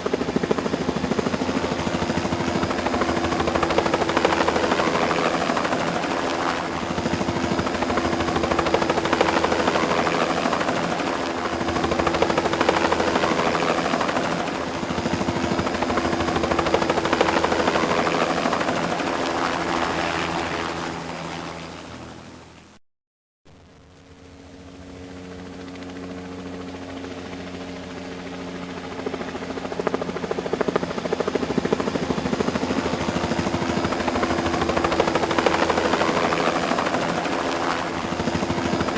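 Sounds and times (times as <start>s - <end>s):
helicopter rotor and engine: 0.0s - 22.8s, 23.5s - 38.9s
constant hum: 23.5s - 38.9s.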